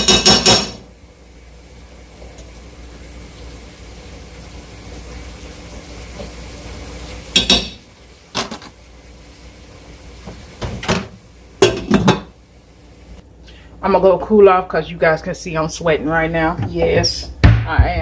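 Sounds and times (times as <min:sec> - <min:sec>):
kitchen knocks and clunks: 0:00.0 - 0:00.8, 0:07.4 - 0:08.7, 0:10.2 - 0:12.3, 0:16.5 - 0:18.0
steady background hiss: 0:00.0 - 0:16.5.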